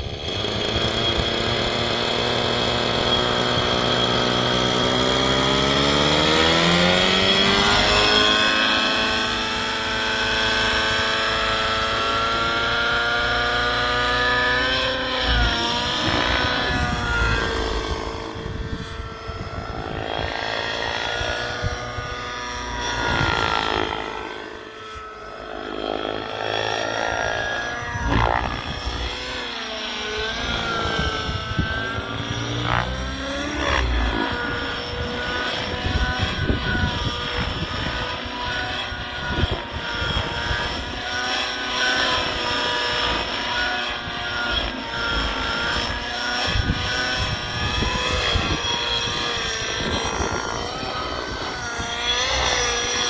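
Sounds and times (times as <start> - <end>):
rc helicopter buzzing: 0.0 - 53.0.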